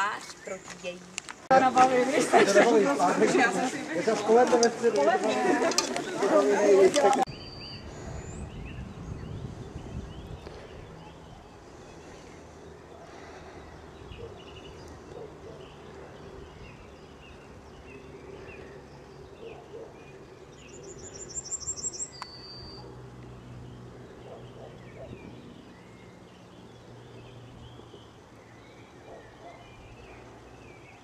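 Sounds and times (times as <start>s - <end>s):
birds chirping: 0.0s - 31.0s
bird trill: 20.6s - 22.9s.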